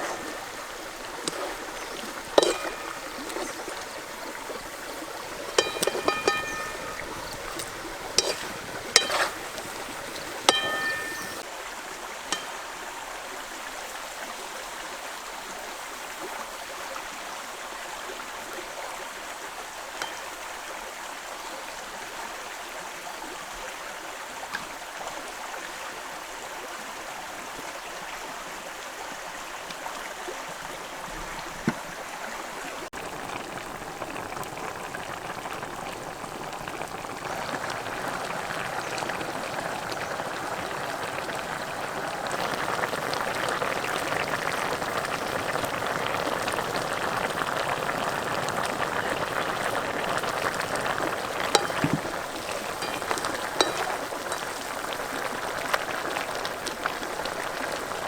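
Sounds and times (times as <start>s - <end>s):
watery hiss: 0.0s - 11.4s
sharp metallic clinks: 5.6s - 11.4s, 52.6s - 54.6s.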